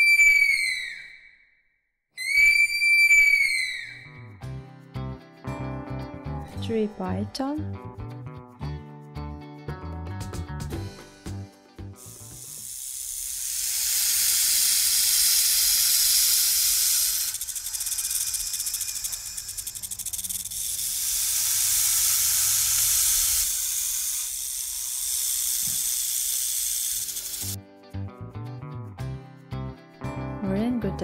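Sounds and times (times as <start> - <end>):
guitar music: 4.2 - 12.6, 27.6 - 31.0
snake hissing: 12.0 - 27.6.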